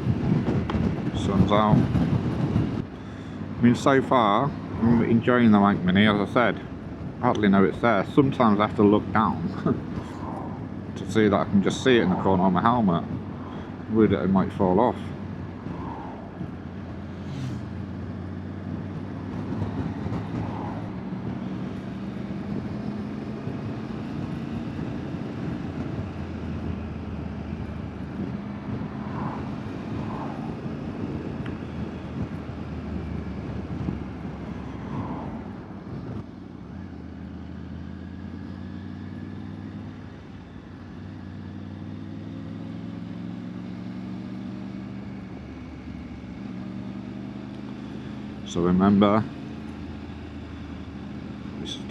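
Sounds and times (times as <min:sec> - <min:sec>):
wind noise: 0:00.0 - 0:03.9, 0:09.0 - 0:36.3
road noise: 0:00.0 - 0:51.9.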